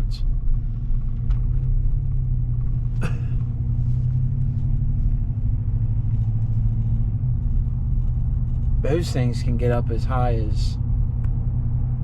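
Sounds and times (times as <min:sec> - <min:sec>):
engine low rumble: 0:00.0 - 0:12.0.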